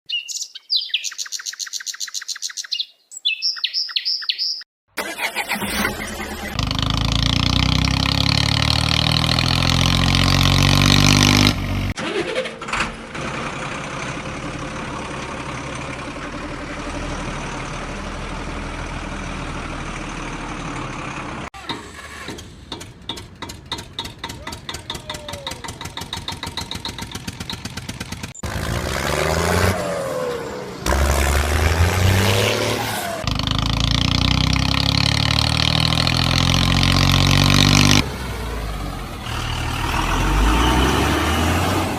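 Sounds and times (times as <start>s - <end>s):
engine starting: 5.0s - 7.8s, 11.9s - 13.6s, 21.6s - 24.8s, 25.5s - 28.6s
pulsing engine: 5.0s - 41.9s.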